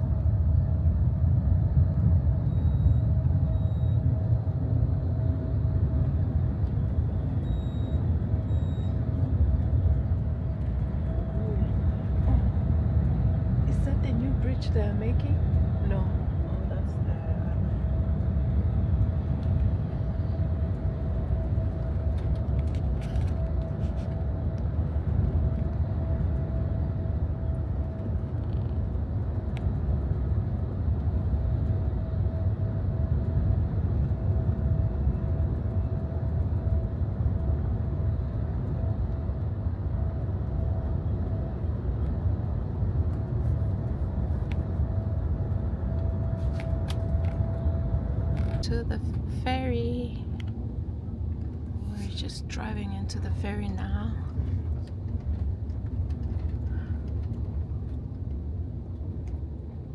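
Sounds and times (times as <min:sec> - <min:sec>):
bus engine and road rumble: 0:00.0 - 0:59.9
thin steady whine: 0:02.4 - 0:27.8, 0:51.8 - 0:54.4.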